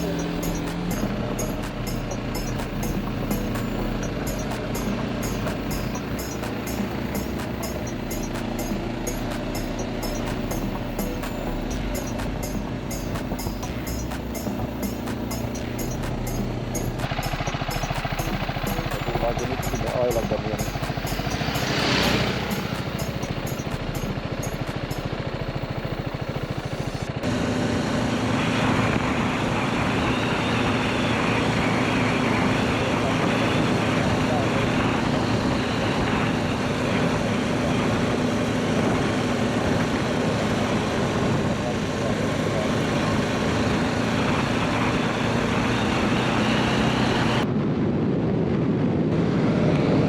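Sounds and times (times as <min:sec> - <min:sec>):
motorcycle engine: 0:00.0 - 0:29.3.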